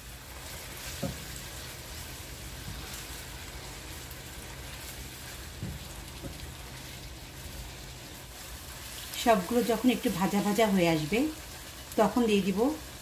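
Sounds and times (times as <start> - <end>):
spatula stirring in pot: 0.0 - 10.4
food sizzling in hot oil: 0.0 - 13.0
soft spatula knocks: 1.0 - 1.3, 5.5 - 6.4.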